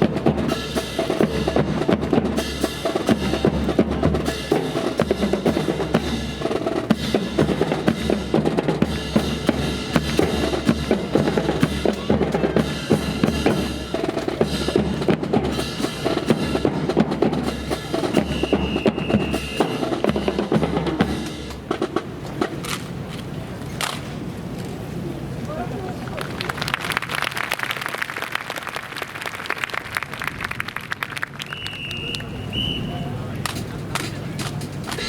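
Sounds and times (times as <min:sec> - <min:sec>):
snare drum rolls: 0:00.0 - 0:22.9.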